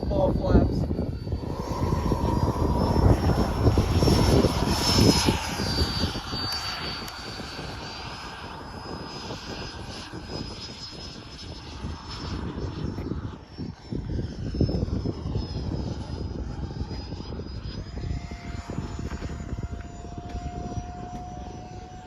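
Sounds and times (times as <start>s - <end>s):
model jet fan whining: 0.0s - 22.0s.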